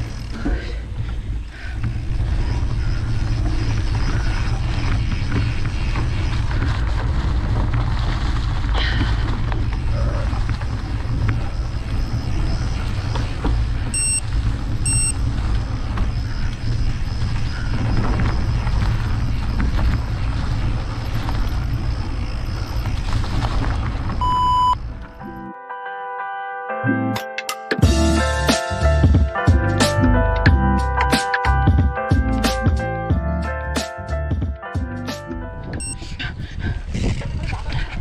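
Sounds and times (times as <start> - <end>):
wind buffeting microphone: 0.0 - 25.0, 35.5 - 38.0
short electronic beeps: 13.9 - 14.2, 14.8 - 15.2, 24.2 - 24.8, 35.8 - 36.0
brief tone: 13.9 - 15.2, 24.2 - 25.5, 35.8 - 36.0.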